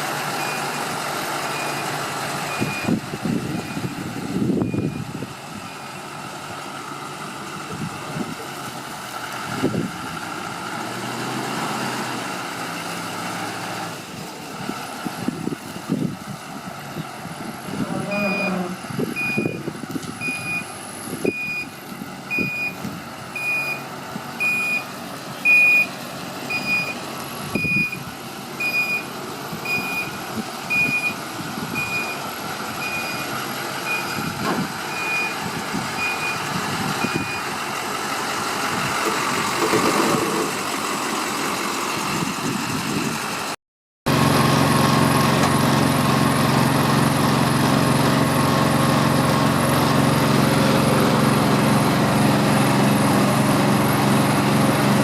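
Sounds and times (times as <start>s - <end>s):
truck engine running: 0.0s - 55.0s
backup alarm beeping: 4.6s - 5.1s, 18.0s - 19.6s, 20.2s - 21.7s, 22.3s - 22.8s, 23.4s - 23.8s, 24.4s - 24.8s, 25.4s - 25.9s, 26.5s - 27.0s, 27.6s - 28.0s, 29.7s - 31.2s
small gas engine running: 44.1s - 55.0s.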